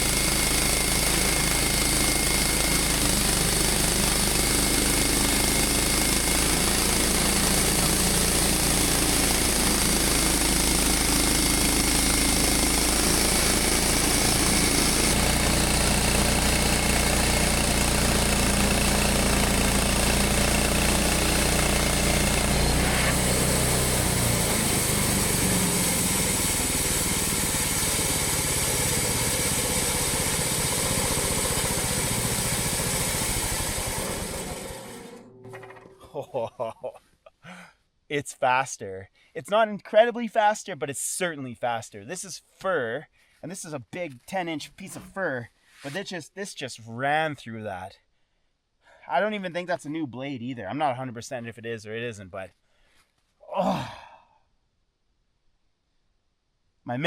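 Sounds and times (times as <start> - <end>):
saw blade cutting wood: 0.0 - 36.6, 44.7 - 46.1
sawmill engine under load: 0.0 - 36.6, 44.6 - 46.0.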